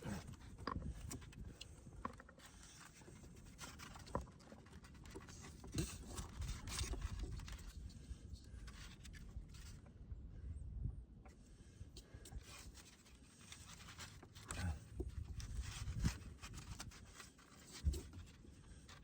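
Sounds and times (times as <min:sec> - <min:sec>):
plastic tubing handling clicks and rustling: 0:00.1 - 0:09.9, 0:11.2 - 0:19.0.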